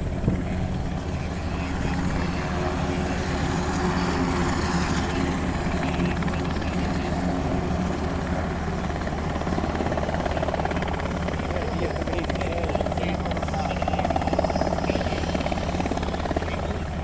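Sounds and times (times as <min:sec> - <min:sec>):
helicopter rotor beating: 0:00.0 - 0:17.0.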